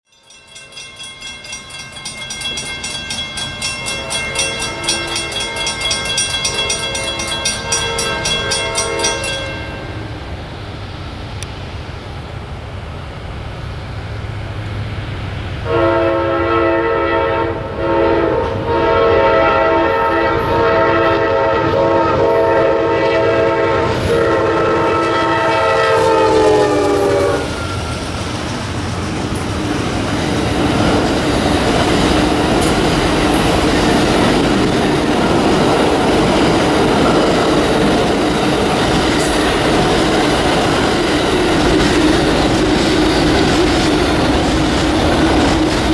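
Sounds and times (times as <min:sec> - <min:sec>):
train wheels clickety-clack: 0:00.1 - 0:10.0, 0:14.6 - 0:45.9
diesel locomotive horn: 0:15.6 - 0:28.1.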